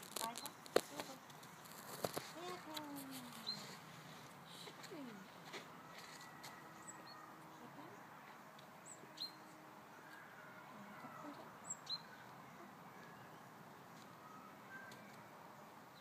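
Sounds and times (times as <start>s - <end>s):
high bird chirps sweeping downward: 11.2s - 12.4s, 13.0s - 15.3s.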